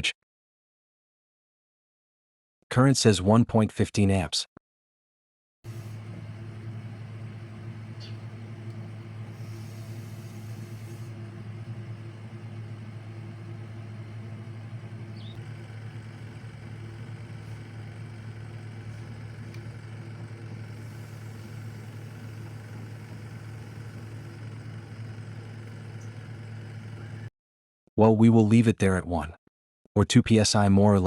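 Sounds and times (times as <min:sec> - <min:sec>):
refrigerator compressor humming: 0:05.7 - 0:27.3.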